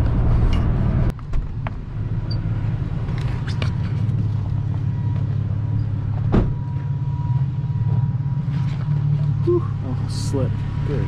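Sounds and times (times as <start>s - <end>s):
road noise: 0.0s - 11.0s
truck engine rumble: 0.0s - 11.0s
short thump: 6.2s - 6.6s.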